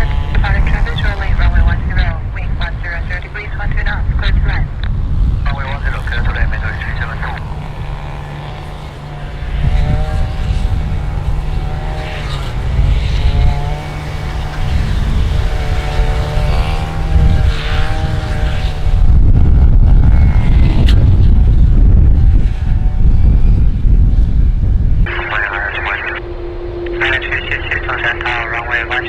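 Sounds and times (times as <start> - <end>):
jet airliner passing overhead: 22.4 - 29.0.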